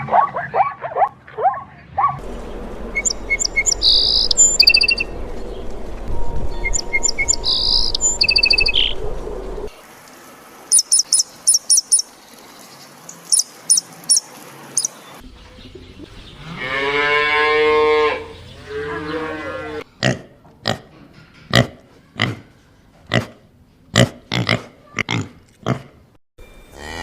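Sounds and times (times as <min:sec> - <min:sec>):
birds chirping: 0:01.7 - 0:09.7, 0:10.6 - 0:16.8
farm animal call: 0:16.3 - 0:19.9.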